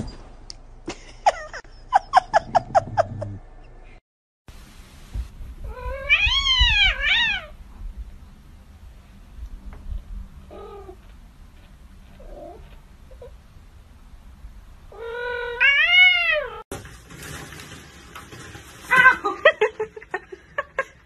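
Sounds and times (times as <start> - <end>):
cat meowing: 5.6 - 7.5, 14.9 - 16.6.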